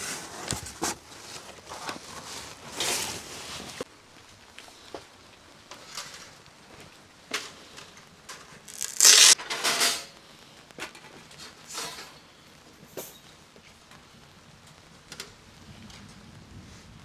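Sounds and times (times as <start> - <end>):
material rustling and crinkling: 0.0 - 7.0, 8.5 - 9.4.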